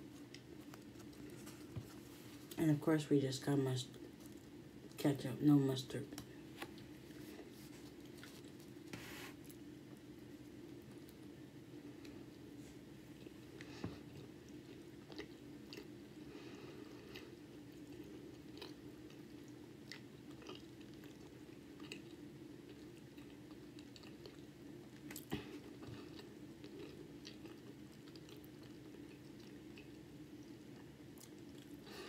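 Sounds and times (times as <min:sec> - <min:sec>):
person chewing: 0:13.2 - 0:16.2, 0:16.8 - 0:31.8.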